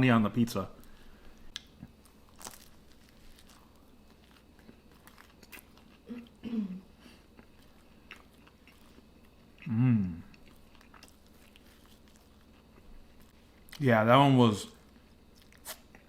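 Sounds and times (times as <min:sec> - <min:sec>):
crunchy chewing: 0:01.5 - 0:06.4, 0:07.2 - 0:13.8, 0:14.8 - 0:16.0
person humming mm: 0:09.6 - 0:10.3.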